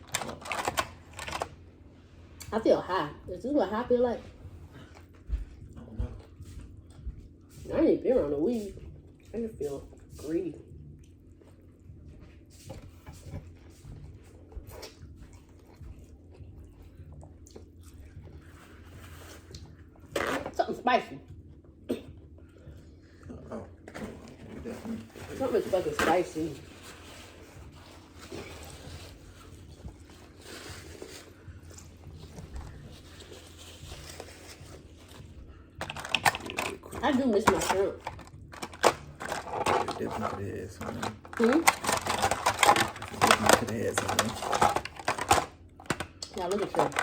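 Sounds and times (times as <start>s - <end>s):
low steady hum: 0.0s - 47.0s
soft chewing: 4.3s - 7.7s, 8.5s - 20.2s, 21.3s - 25.3s, 26.6s - 37.0s
person chewing with wet smacks: 10.7s - 18.6s.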